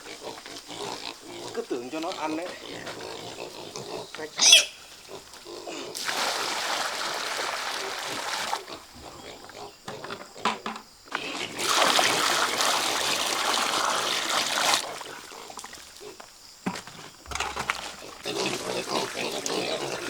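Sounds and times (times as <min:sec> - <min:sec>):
pigs grunting and squealing: 0:00.0 - 0:06.2, 0:07.7 - 0:10.4, 0:17.8 - 0:20.0
water splashing and pouring: 0:06.0 - 0:08.8, 0:11.4 - 0:16.0.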